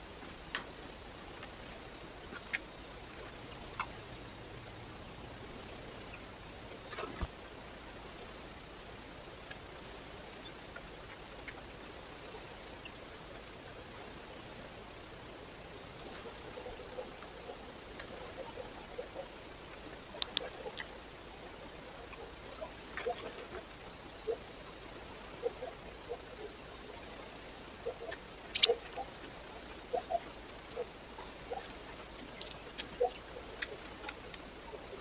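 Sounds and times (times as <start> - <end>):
sharp ticks: 28.5 - 28.8, 32.2 - 34.5.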